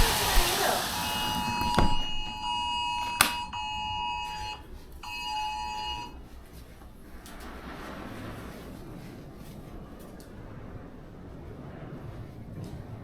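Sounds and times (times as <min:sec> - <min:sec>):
electronic alert beep: 0:01.0 - 0:06.2.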